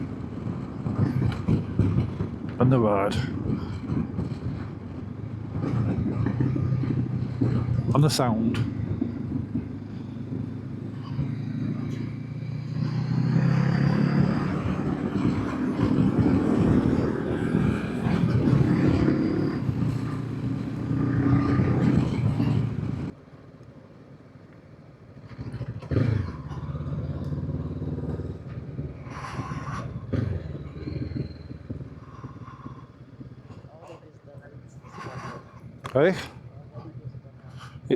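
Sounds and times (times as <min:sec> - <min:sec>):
wind noise: 0:00.0 - 0:23.2
low engine rumble: 0:00.0 - 0:37.9
motorcycle engine under throttle: 0:00.0 - 0:37.9.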